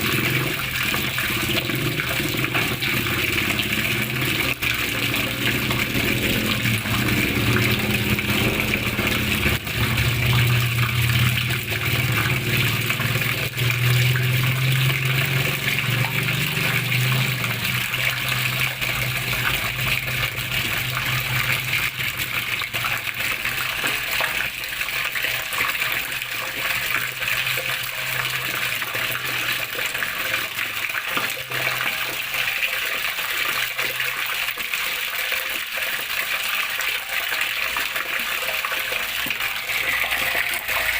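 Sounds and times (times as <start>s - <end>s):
water flowing and splashing: 0.0s - 40.9s.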